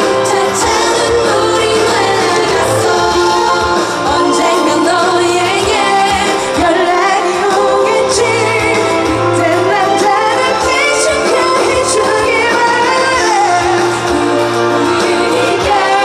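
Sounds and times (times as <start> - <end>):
band with drums: 0.0 - 16.0
woman singing pop song: 0.0 - 16.0.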